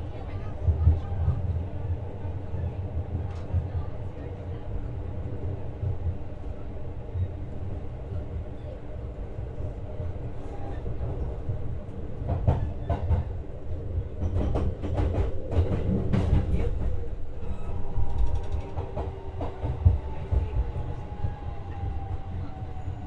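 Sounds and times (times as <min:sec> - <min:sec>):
train running rumble: 0:09.2 - 0:23.0.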